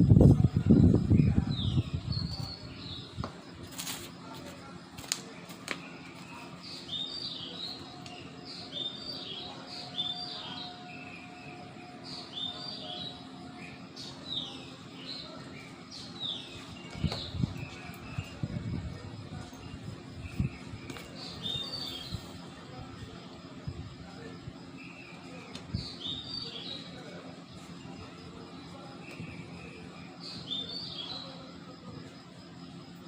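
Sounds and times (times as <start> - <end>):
low wind rumble on microphone: 0.0 - 3.4, 16.8 - 23.0
small birds chirping and singing: 0.0 - 33.0.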